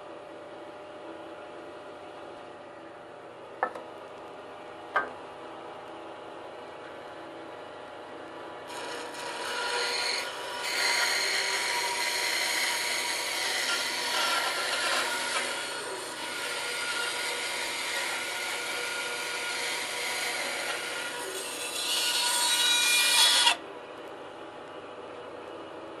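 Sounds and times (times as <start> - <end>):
bandsaw motor hum: 8.5 - 23.6
bandsaw cutting wood: 8.7 - 23.6.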